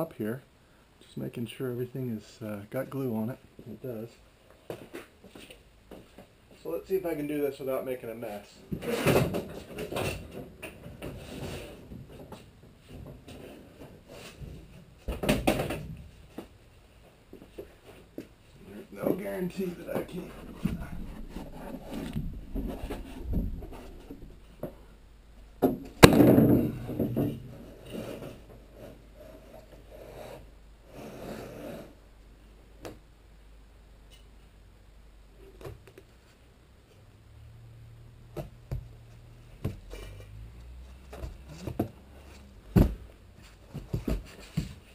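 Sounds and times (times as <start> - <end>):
wood rubbing and knocking on wood: 19.0 - 24.8
loud wooden clatter: 25.6 - 27.6.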